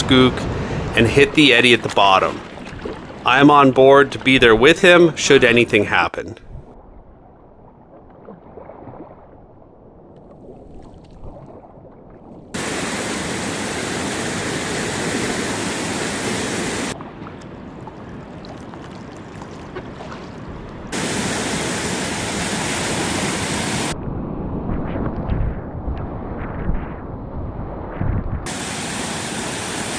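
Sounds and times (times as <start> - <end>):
rushing whitewater: 12.6 - 17.0, 20.9 - 24.0, 28.5 - 29.9.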